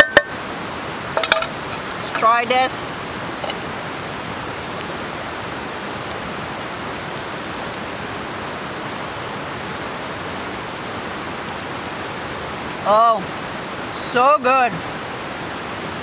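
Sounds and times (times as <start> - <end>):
river flowing: 0.0 - 16.0
faint ticks: 10.1 - 12.2.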